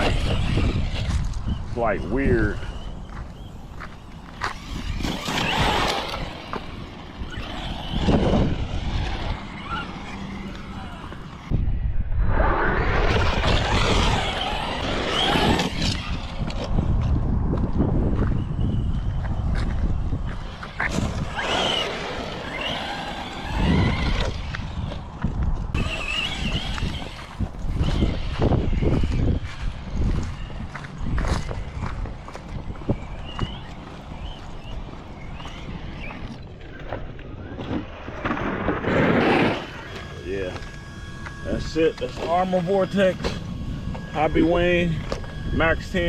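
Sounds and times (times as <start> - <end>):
electric rc truck motor surges: 0.0 - 11.8, 12.4 - 46.0
steady low rumble: 0.0 - 22.4.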